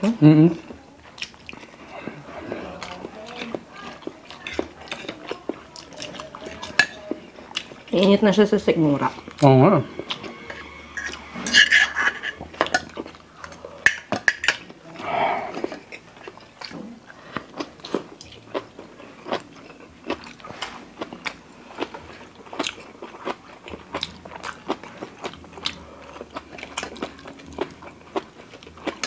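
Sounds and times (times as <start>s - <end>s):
wet chewing and lip smacks: 0.6s - 6.8s, 15.5s - 29.0s.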